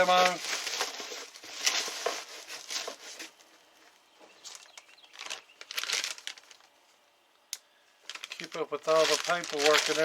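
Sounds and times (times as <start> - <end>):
packaging rustling and crinkling: 0.0 - 3.6, 4.4 - 6.8, 8.0 - 10.0.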